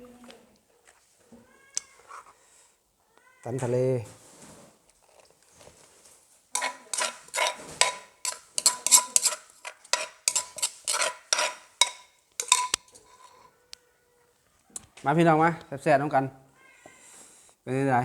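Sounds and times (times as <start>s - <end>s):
utensil scraping and knocking in bowl: 6.5s - 13.5s.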